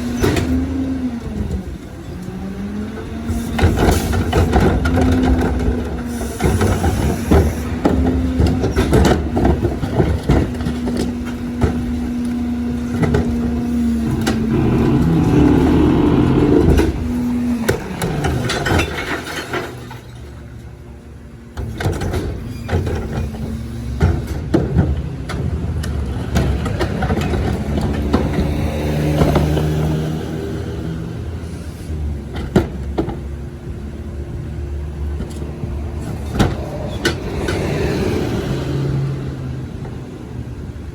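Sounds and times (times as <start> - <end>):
machine hum: 14.0 - 17.3.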